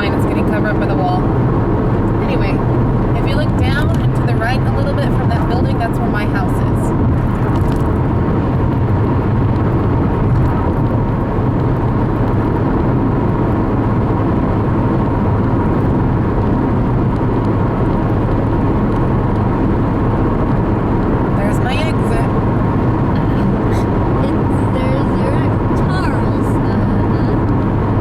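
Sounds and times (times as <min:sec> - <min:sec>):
tyre and engine rumble: 0:00.0 - 0:28.0.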